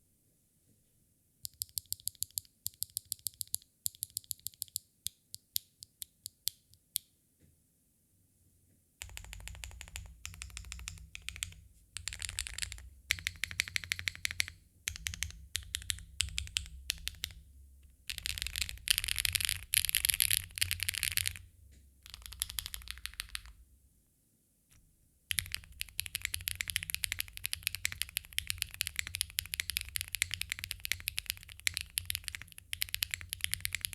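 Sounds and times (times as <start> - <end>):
mechanical keyboard typing: 1.5 - 4.8, 9.0 - 17.4, 18.1 - 21.4, 22.0 - 23.6, 25.3 - 33.9.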